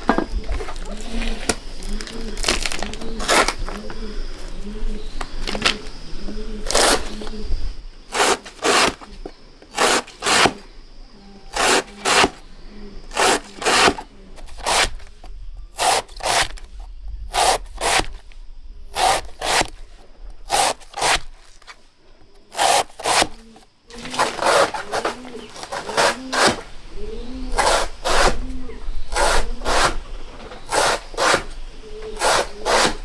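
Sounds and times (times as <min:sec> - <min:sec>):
rasping scrape strokes: 0:08.1 - 0:09.1, 0:09.7 - 0:10.6, 0:11.5 - 0:12.4, 0:13.1 - 0:15.2, 0:15.8 - 0:18.3, 0:27.4 - 0:28.5, 0:29.1 - 0:30.0, 0:30.6 - 0:33.0.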